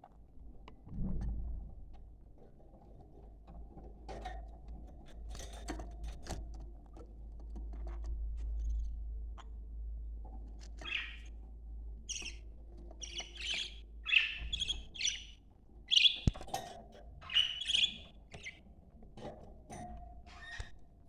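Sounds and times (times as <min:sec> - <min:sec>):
budgerigars chirping and chattering: 0:10.7 - 0:11.4, 0:12.0 - 0:18.6.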